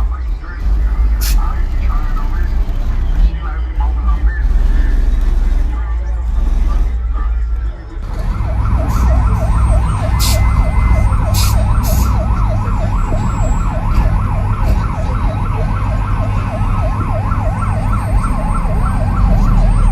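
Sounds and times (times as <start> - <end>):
heavy low rumble: 0.0 - 19.9
siren wailing in fast yelp: 8.1 - 19.9.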